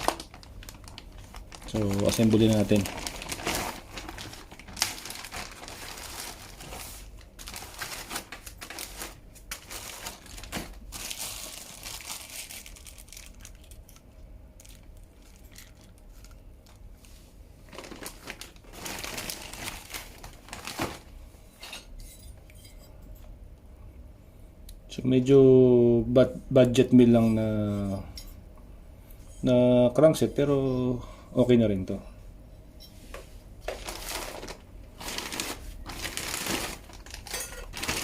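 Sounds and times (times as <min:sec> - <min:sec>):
packaging rustling and crinkling: 0:00.0 - 0:14.0, 0:14.6 - 0:21.2, 0:33.1 - 0:38.0.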